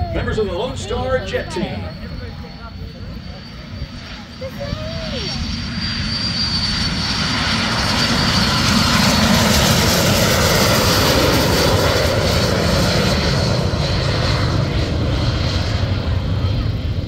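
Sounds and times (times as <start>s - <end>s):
jet engines at full throttle: 0.0s - 17.0s.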